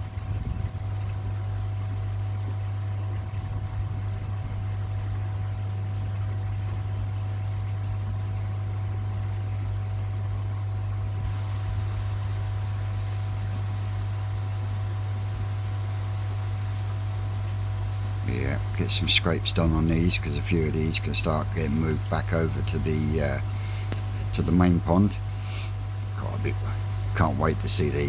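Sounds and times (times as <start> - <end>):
pond pumps humming: 0.0 - 28.0
moving water hiss: 11.1 - 28.0.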